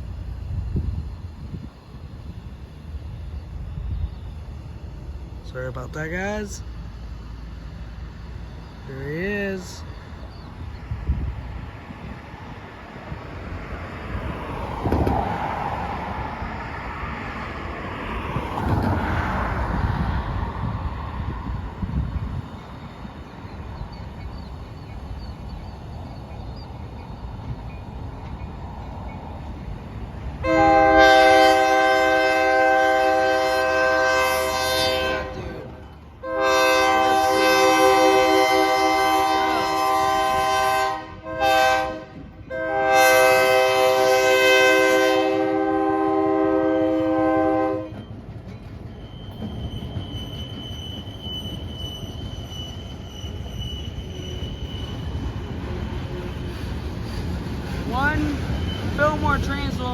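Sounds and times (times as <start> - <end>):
train rumbling: 0.0 - 59.9
locomotive air horn blasts: 30.4 - 48.0.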